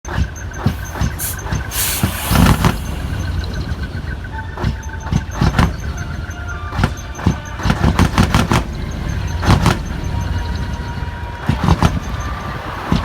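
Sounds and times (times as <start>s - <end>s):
diesel truck engines rumbling: 0.1s - 13.0s
brief hiss: 0.6s - 4.0s.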